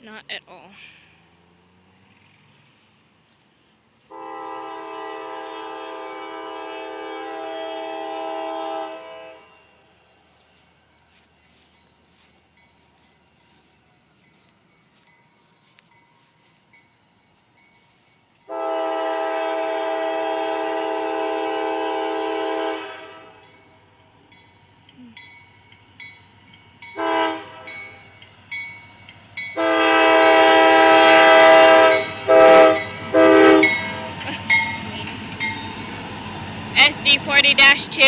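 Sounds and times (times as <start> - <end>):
locomotive air horn blasts: 4.0 - 9.8, 18.5 - 23.5, 27.0 - 27.9, 29.5 - 34.2.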